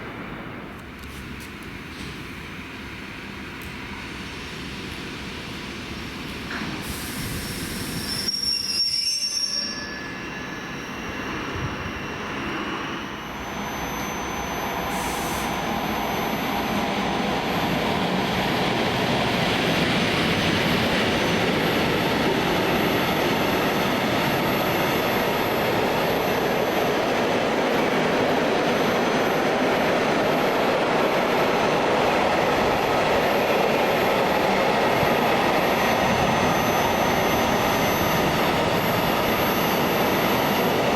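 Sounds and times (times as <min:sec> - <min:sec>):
train rushing past: 0:01.7 - 0:40.9
high squealing tones: 0:07.9 - 0:17.8.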